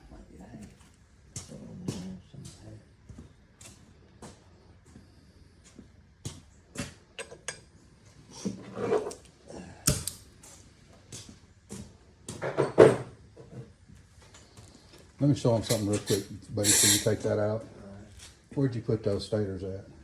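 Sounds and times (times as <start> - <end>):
metal parts scraping and sliding: 8.4 - 9.3, 15.8 - 17.3
metal engine parts clinking: 15.6 - 17.3.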